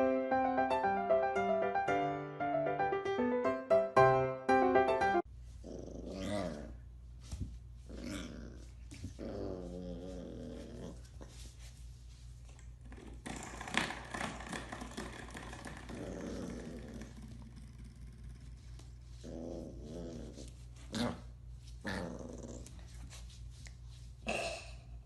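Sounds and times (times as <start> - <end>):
puppy growling: 5.6 - 6.8, 7.8 - 11.4, 12.8 - 23.0.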